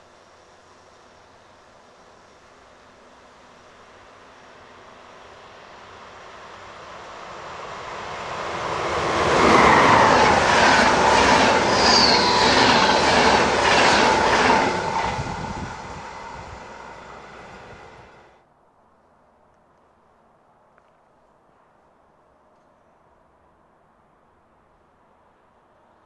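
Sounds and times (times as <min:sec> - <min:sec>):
train whine: 0:00.0 - 0:18.4.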